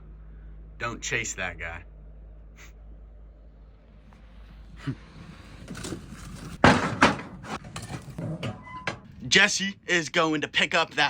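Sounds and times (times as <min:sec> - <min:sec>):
steady low hum: 0:00.0 - 0:11.0
loud thump and clatter: 0:05.7 - 0:09.1.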